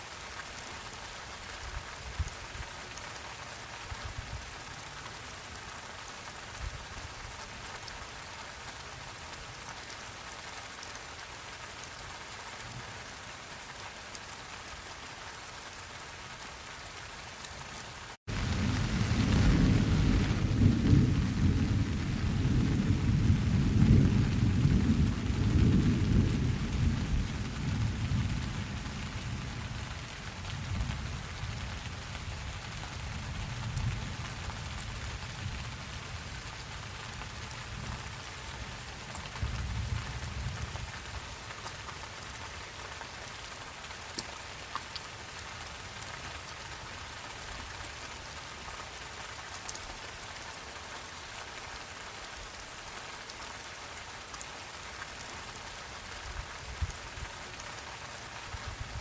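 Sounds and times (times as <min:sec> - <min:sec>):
steady rain falling: 0:00.0 - 0:59.0
low rumble of thunder: 0:18.3 - 0:41.2
light drip ticks: 0:39.0 - 0:39.5, 0:44.0 - 0:45.1, 0:49.6 - 0:49.9.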